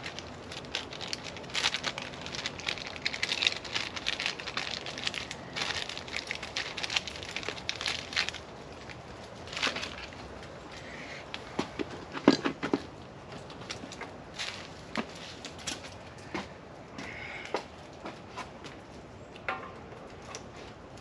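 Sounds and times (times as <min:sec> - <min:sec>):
packaging crinkling and rustling: 0:00.0 - 0:10.7, 0:11.8 - 0:16.0.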